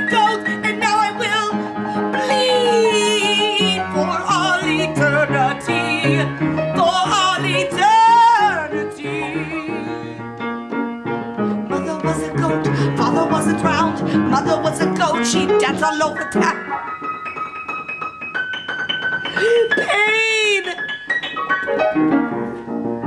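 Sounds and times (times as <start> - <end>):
singer with vibrato: 2.1 - 10.2.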